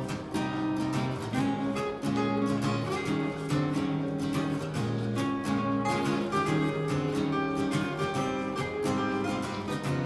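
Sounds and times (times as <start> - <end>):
picked guitar melody: 0.0 - 10.0
strummed acoustic guitar chords: 0.0 - 10.0.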